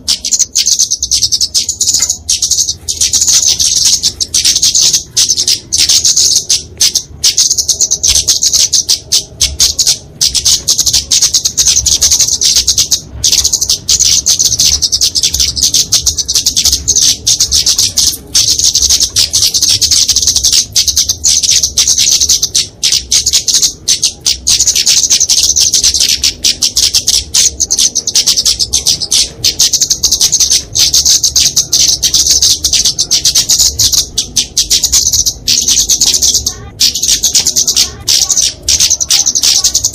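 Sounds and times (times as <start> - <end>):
bird chattering calls: 0.0 - 39.9.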